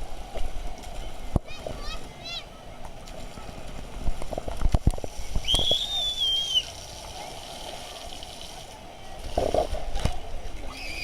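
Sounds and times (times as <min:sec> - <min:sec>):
distant crowd noise: 0:00.0 - 0:11.0
water splashing and sloshing: 0:00.0 - 0:11.0.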